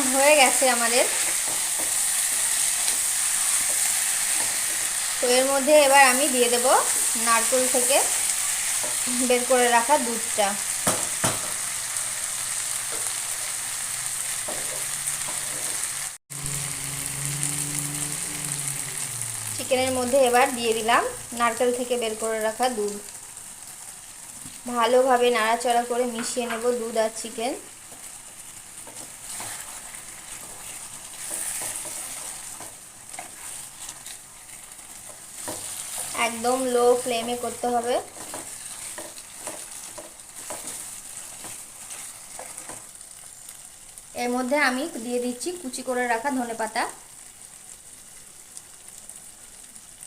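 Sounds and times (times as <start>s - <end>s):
curry sizzling in a pan: 0.0s - 50.0s
spoon scraping a pan: 0.4s - 5.2s, 28.8s - 36.4s, 37.7s - 43.0s.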